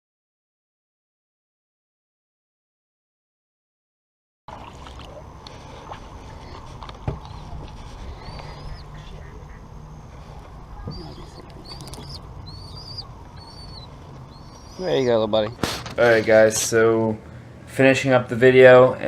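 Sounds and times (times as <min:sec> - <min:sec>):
outdoor background noise: 0:04.5 - 0:19.0
small bird chirping: 0:07.2 - 0:15.6.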